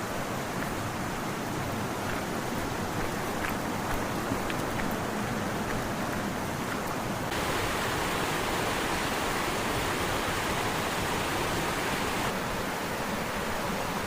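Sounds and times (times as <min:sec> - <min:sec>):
waterfall cascading down rock: 0:00.0 - 0:14.0.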